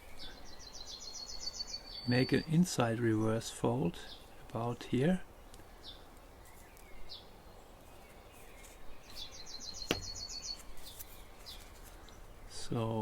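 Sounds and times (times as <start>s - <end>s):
small bird trilling: 8.4s - 11.7s
faint single bird chirps: 8.4s - 12.2s.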